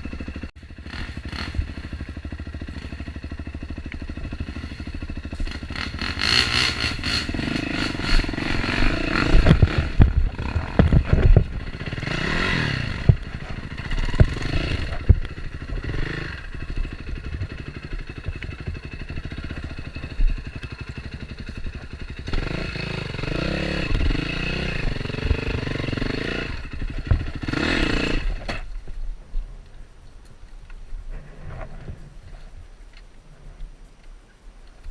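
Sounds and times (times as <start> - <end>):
dirt bike engine revving: 0.0 - 28.7
bike clattering over rough ground: 3.8 - 22.5.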